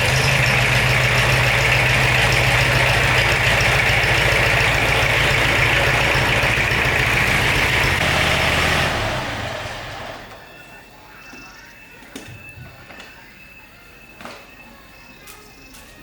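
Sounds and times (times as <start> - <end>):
tractor engine idling: 0.0 - 11.1.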